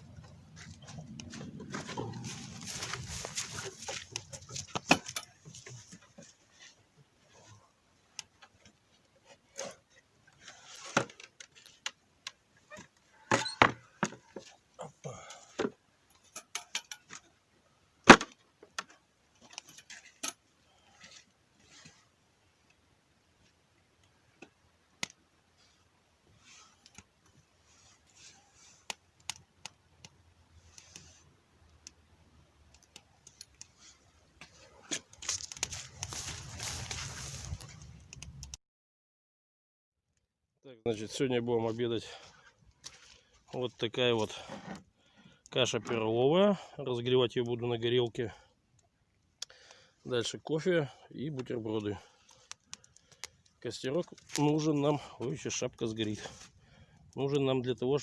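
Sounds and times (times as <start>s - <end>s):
rustling: 0.0s - 9.8s, 32.9s - 38.5s
clicks and rustling of handling: 0.1s - 17.4s, 18.1s - 22.8s, 26.4s - 38.6s, 51.2s - 58.0s.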